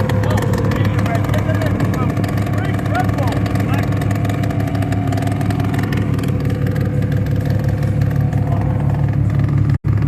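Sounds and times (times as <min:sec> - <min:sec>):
diesel engine droning: 0:00.0 - 0:10.0.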